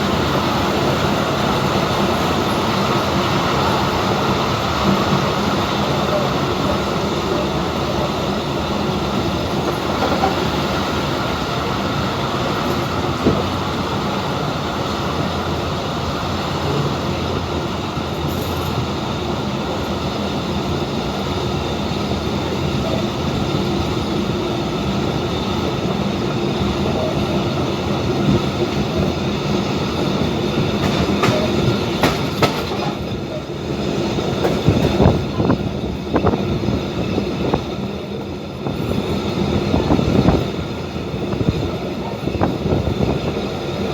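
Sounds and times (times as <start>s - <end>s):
train rumbling and rattling on rails: 0.0s - 43.9s
sharp clicks and knocks: 30.8s - 33.0s.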